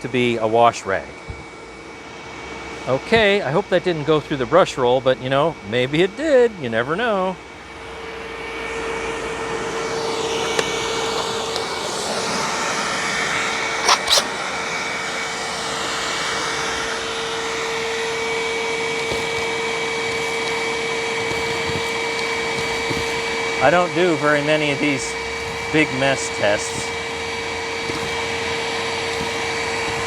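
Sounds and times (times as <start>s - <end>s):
vacuum cleaner whining: 0.0s - 30.0s
debris sucked through hose: 13.8s - 14.3s.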